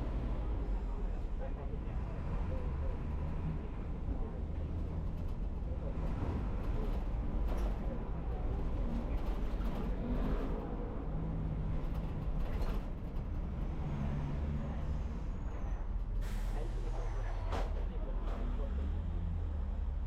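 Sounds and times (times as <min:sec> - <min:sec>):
bus engine drone: 0:00.0 - 0:20.0
road noise: 0:00.0 - 0:20.0
clatters and rattles: 0:04.6 - 0:10.8, 0:11.6 - 0:13.9.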